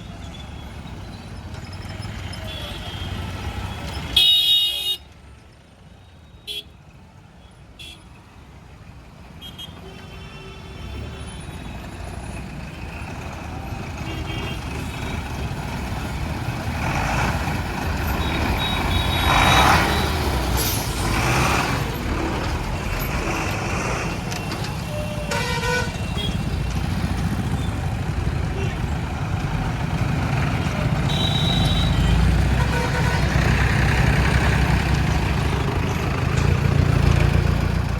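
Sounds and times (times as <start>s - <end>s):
heavy vehicles rumbling past: 10.8s - 37.9s.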